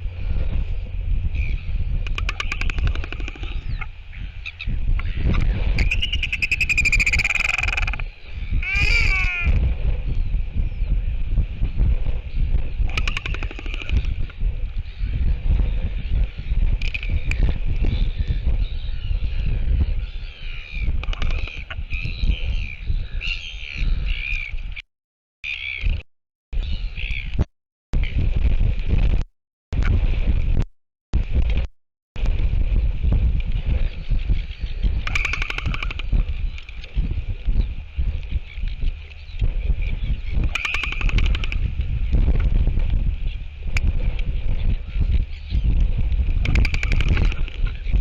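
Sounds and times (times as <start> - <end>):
birds calling: 0.0 - 11.1, 12.3 - 24.8, 33.8 - 42.2, 43.0 - 48.0
wind rumble on microphone: 0.0 - 24.8, 25.5 - 26.0, 26.6 - 48.0
albatross pulsed call: 1.4 - 9.6, 12.9 - 14.3, 35.0 - 36.8, 40.4 - 41.7
albatross bill clapping rattle: 2.1 - 3.6, 12.9 - 14.4, 21.0 - 21.6, 35.0 - 36.9, 40.5 - 41.8, 46.4 - 47.8.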